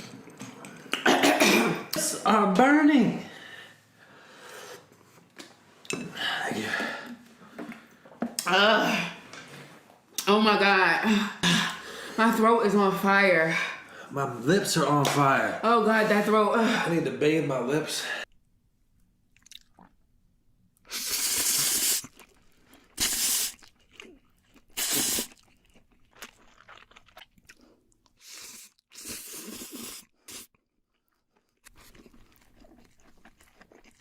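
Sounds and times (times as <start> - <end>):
person eating noodles: 20.9 - 34.0.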